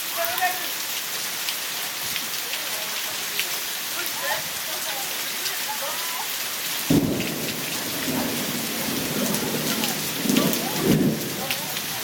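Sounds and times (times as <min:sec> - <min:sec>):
heavy rain hissing: 0:00.0 - 0:12.0
thunder rumbling: 0:06.9 - 0:12.0.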